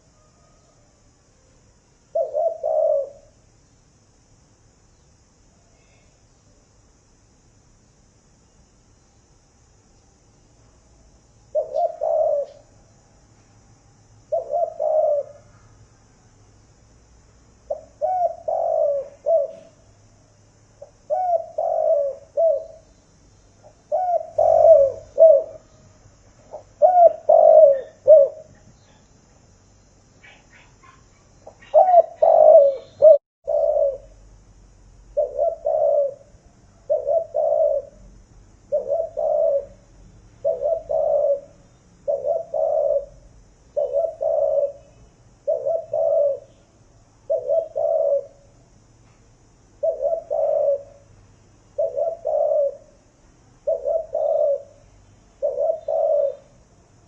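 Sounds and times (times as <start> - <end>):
dove cooing: 2.1 - 3.4, 11.5 - 12.7, 14.3 - 15.6, 17.7 - 19.8, 20.8 - 22.8, 23.6 - 25.8, 26.5 - 29.0, 30.2 - 34.2, 35.1 - 38.0, 38.7 - 39.8, 40.4 - 46.6, 47.2 - 48.5, 49.8 - 51.0, 51.7 - 53.0, 53.6 - 54.8, 55.4 - 56.6.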